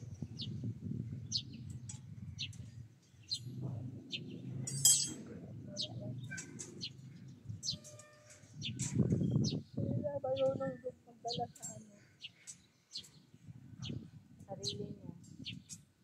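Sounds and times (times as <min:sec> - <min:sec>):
small birds chirping: 0:00.0 - 0:16.0
sharp metal clink: 0:04.7 - 0:05.3.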